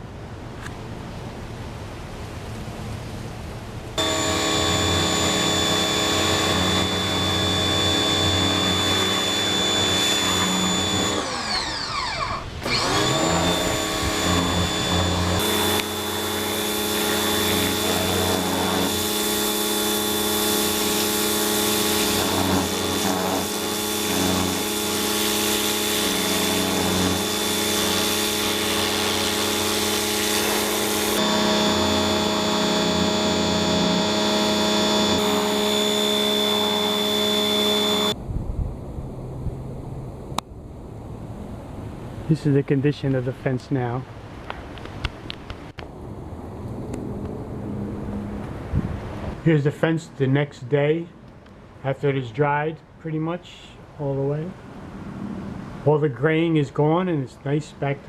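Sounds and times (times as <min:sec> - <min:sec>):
pressure washer motor whine: 0:04.0 - 0:38.2
water spray hissing: 0:13.1 - 0:33.9.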